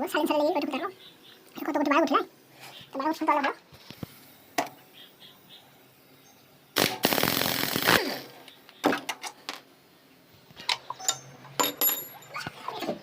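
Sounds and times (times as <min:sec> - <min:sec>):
high metal clink: 0:11.0 - 0:12.4.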